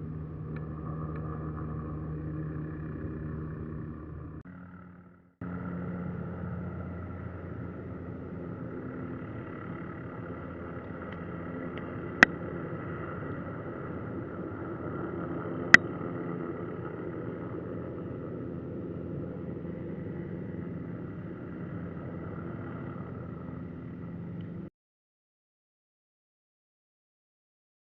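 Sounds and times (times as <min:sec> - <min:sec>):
helicopter running: 0:00.0 - 0:24.7.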